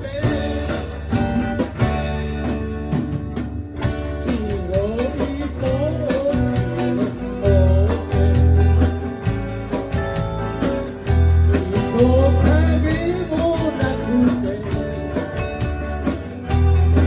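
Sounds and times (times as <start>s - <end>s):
guitar: 0.0s - 17.0s
heavy bass notes: 0.0s - 17.0s
person singing: 4.0s - 8.8s, 11.5s - 15.3s.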